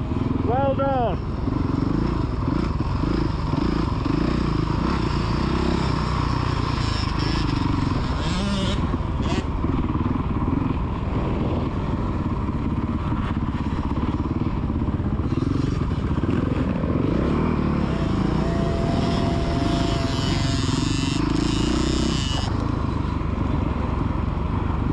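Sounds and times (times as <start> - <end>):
dirt bike engine revving: 1.4 - 11.7, 15.0 - 23.0.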